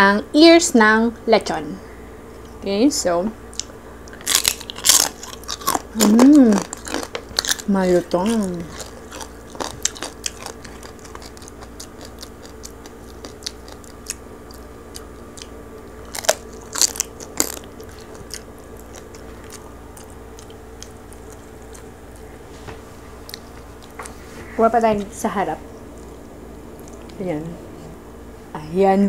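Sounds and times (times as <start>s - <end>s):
steady low hum: 0.0s - 29.0s
crunchy chewing: 3.5s - 24.3s, 25.7s - 27.2s.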